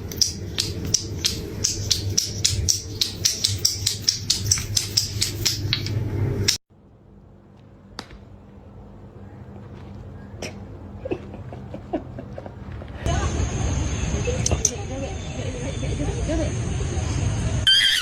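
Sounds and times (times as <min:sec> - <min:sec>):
rapid even tapping: 0:00.0 - 0:06.6
steady low hum: 0:00.0 - 0:17.7.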